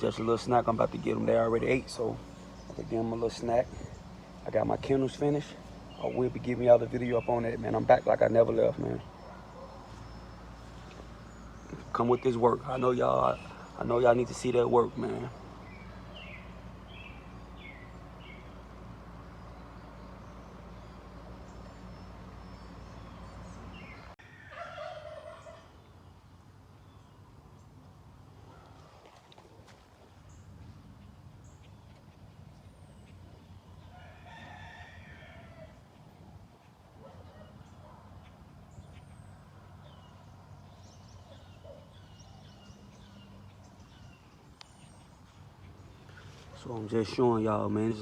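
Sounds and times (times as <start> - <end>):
steady low hum: 0.0 - 24.2.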